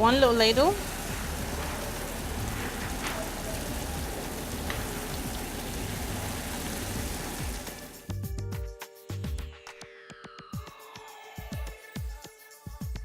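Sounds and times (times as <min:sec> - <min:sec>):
batter sizzling in a pan: 0:00.0 - 0:08.1.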